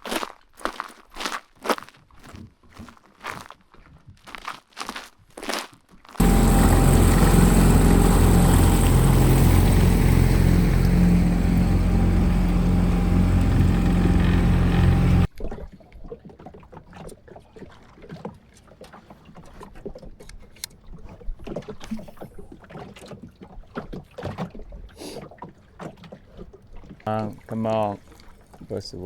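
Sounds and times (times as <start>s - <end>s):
boat motor running: 6.2s - 15.3s.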